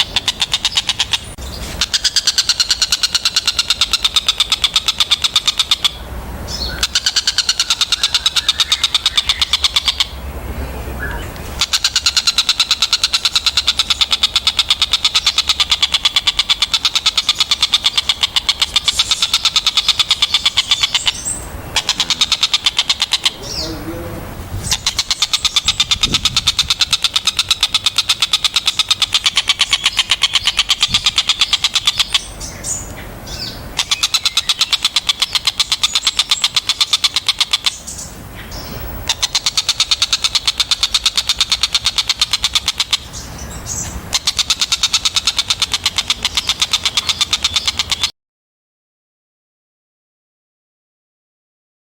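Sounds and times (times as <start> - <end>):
kingfisher chattering call: 0.0 - 10.2, 11.0 - 48.1.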